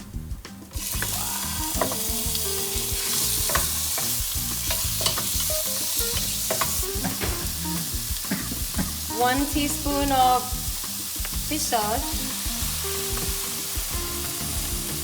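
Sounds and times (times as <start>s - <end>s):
spatula scraping a wok: 0.8s - 9.1s
scallops sizzling in hot oil: 0.8s - 15.0s.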